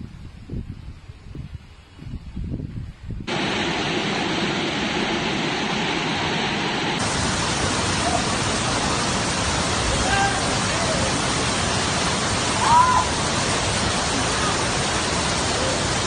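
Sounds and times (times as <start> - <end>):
floodwater rushing: 3.3 - 16.0.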